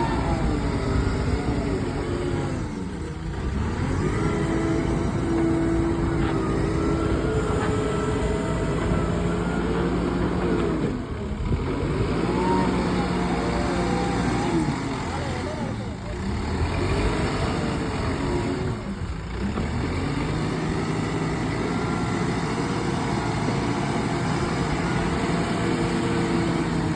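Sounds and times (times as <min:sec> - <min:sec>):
heavy machine engine working: 0:00.0 - 0:26.9.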